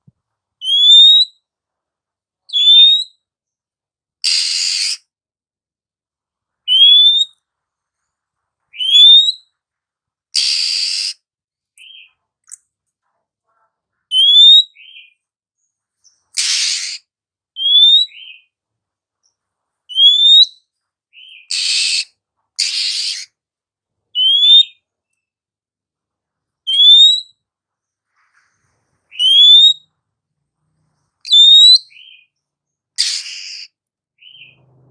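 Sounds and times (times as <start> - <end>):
harsh rasping bird calls: 4.2 - 5.1, 10.4 - 11.2, 16.0 - 18.5, 21.2 - 23.4, 33.0 - 34.9
bird rising whistle: 10.4 - 11.2, 29.1 - 29.8, 31.3 - 32.0.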